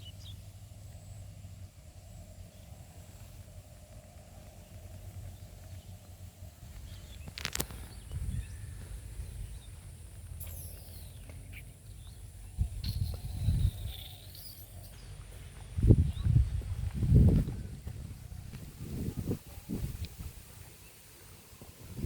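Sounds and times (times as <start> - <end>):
faint high bird calls: 4.4 - 16.4
wind buffeting microphone: 6.5 - 10.2, 11.1 - 14.1, 15.1 - 20.7, 21.6 - 22.0.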